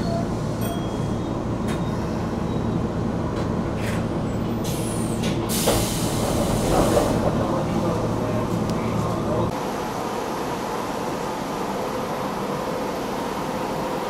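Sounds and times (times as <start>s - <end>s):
loud hissing air burst: 4.7s - 7.2s.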